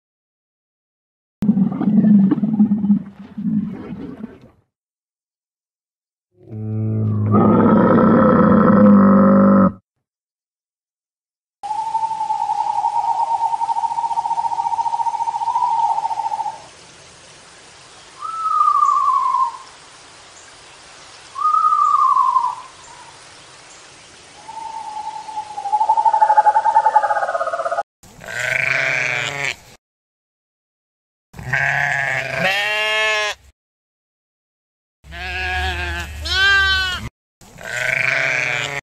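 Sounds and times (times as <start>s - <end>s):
lemur calls: 11.7s - 16.6s, 18.2s - 19.7s, 21.4s - 23.1s, 24.4s - 27.8s
sheep bleating: 28.2s - 29.6s, 31.4s - 33.4s, 35.1s - 38.8s.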